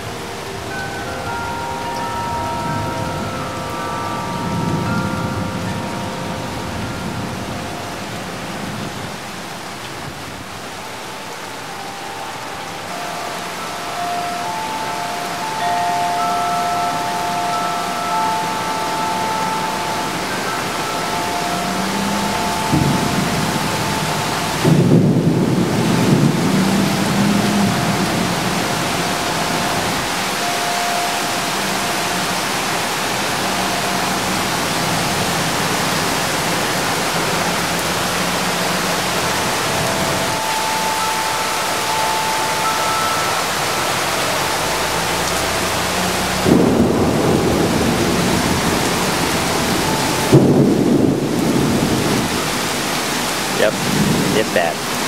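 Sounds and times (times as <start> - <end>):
heavy rain pouring: 0.0 - 55.0
thunder rumbles: 17.6 - 30.2, 44.6 - 55.0.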